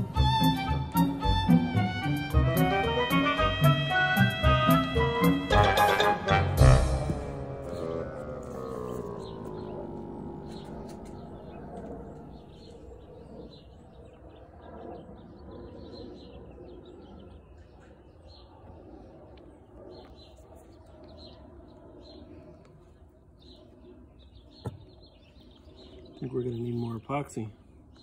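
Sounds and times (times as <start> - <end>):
low outdoor hum: 0.0 - 28.0
small birds chirping: 6.6 - 28.0.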